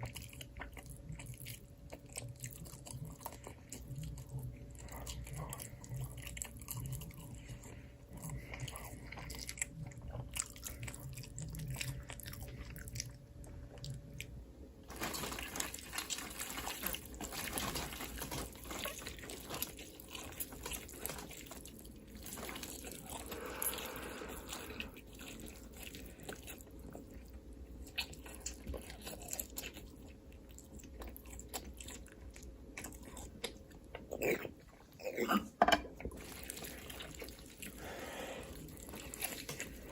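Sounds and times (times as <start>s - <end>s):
wet chewing: 0.0s - 35.1s, 36.0s - 39.9s
biting and crunching: 0.0s - 35.2s, 36.1s - 39.9s
faint hum: 0.0s - 39.9s.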